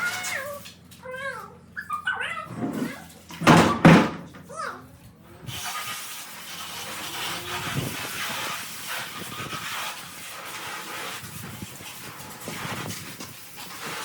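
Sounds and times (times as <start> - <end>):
pressure washer spraying water: 5.5 - 14.0.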